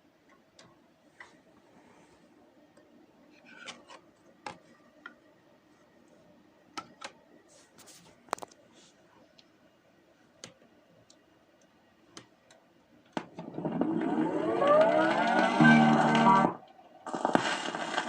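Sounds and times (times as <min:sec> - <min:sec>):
vinyl hiss and hum: 0:00.0 - 0:18.0
vinyl clicks and pops: 0:12.2 - 0:18.0.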